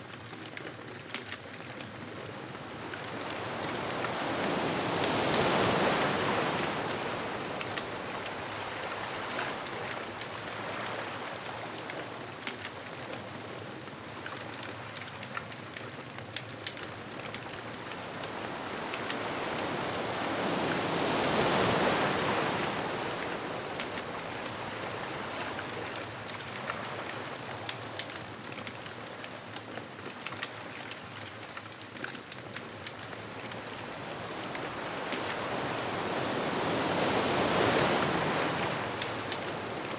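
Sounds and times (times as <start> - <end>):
ocean waves breaking: 2.4 - 28.3, 32.7 - 39.9
faint sharp crackles: 5.0 - 20.2.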